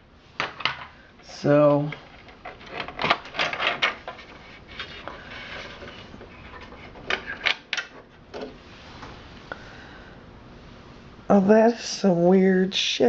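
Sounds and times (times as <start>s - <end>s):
plastic and metal parts clicking: 1.8s - 8.6s.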